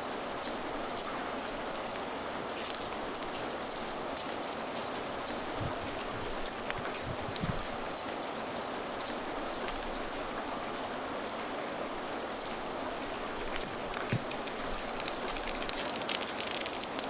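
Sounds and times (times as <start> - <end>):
fire crackling: 0.0 - 17.0
steady rain: 0.0 - 17.0.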